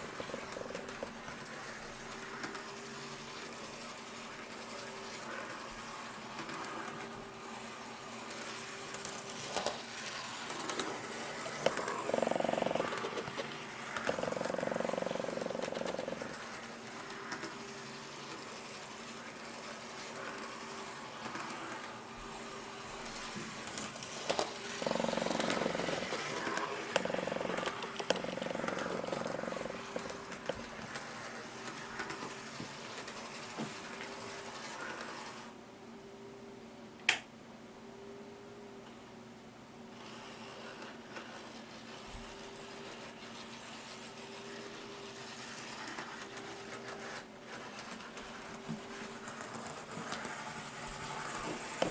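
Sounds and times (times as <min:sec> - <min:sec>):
electric motor humming: 0:23.7 - 0:30.6.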